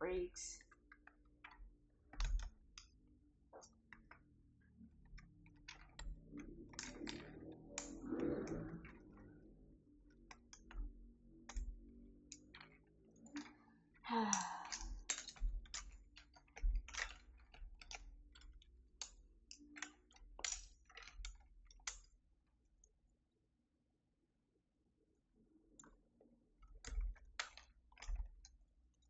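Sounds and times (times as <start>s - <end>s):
keyboard keycaps clicking: 0.8s - 4.2s, 14.1s - 22.2s.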